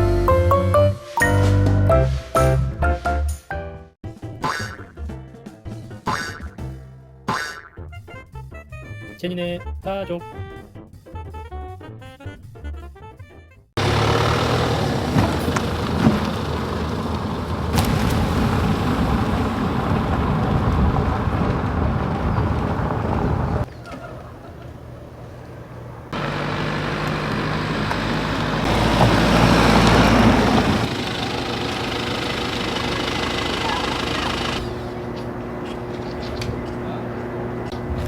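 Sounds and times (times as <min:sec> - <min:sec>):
car engine and road noise: 0:13.8 - 0:38.0.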